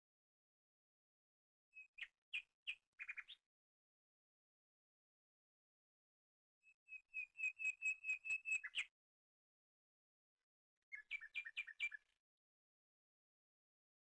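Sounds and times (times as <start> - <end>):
bird whistling call: 7.2 - 8.9.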